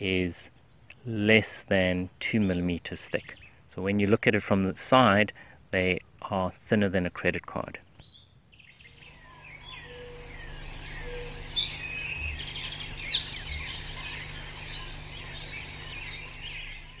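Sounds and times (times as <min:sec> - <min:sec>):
birds chirping and calling: 0:08.0 - 0:17.0.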